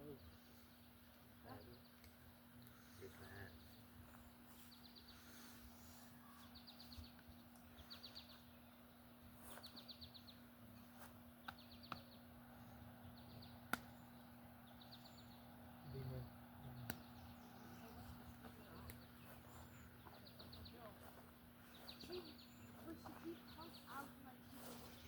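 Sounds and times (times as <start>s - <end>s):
low steady hum: 0.0s - 25.0s
sharp clicks: 13.6s - 13.9s, 16.8s - 17.1s.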